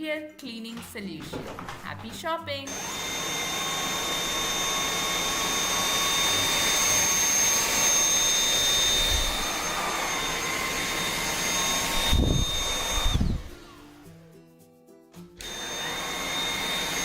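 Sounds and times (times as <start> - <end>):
vacuum cleaner running: 2.7 - 13.8, 15.4 - 17.0.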